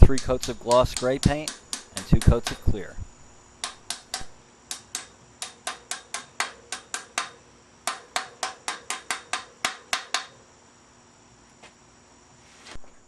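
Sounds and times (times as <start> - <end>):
hammer tapping metal: 0.0 - 2.8, 3.6 - 10.4.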